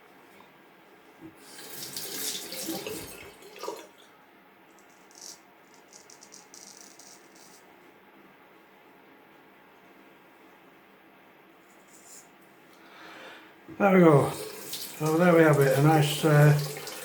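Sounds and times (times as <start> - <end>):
tap water running into sink: 1.4 - 4.0, 14.2 - 17.0.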